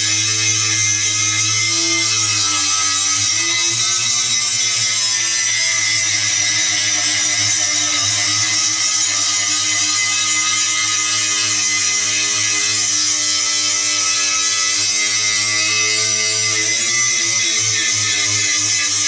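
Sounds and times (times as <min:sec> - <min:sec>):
angle grinder grinding steel: 0:00.0 - 0:19.0.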